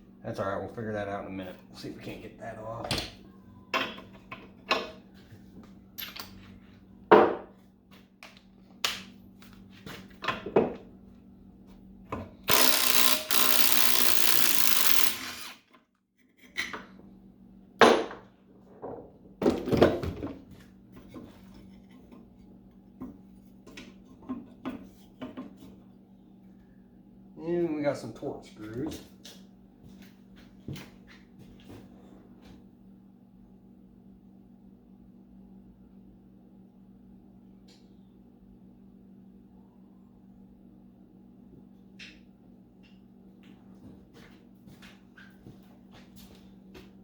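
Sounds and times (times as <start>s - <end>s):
power tool running: 12.5s - 15.7s
faint low hum: 18.4s - 47.0s.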